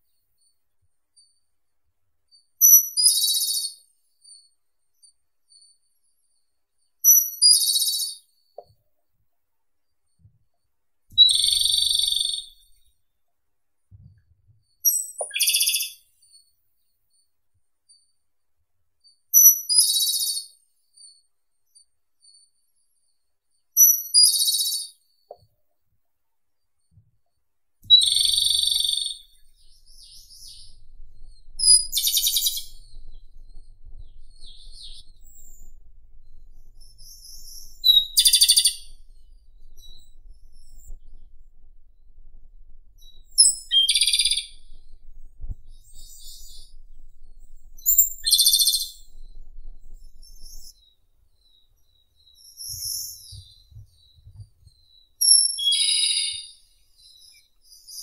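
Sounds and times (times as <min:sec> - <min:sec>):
bird singing trills: 0:02.6 - 0:04.4, 0:11.2 - 0:12.8, 0:14.8 - 0:16.1, 0:27.9 - 0:58.0.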